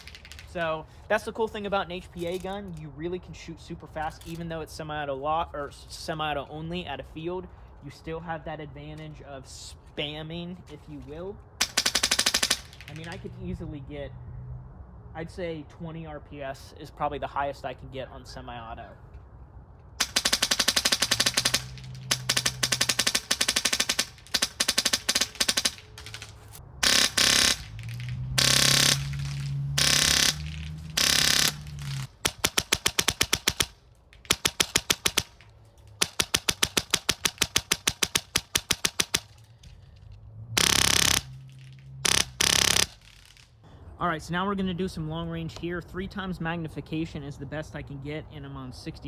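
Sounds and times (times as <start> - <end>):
airsoft rifle rapid shots: 0.0 - 0.6, 11.6 - 13.3, 20.0 - 35.4, 36.0 - 39.5, 40.6 - 43.4.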